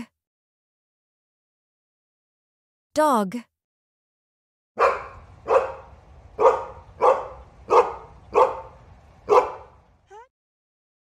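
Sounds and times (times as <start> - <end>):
dog barking: 4.8 - 9.8.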